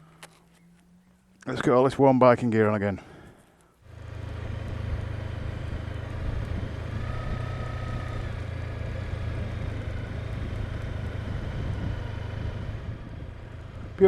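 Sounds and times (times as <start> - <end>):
motorcycle engine and wind drone: 3.8 - 14.0.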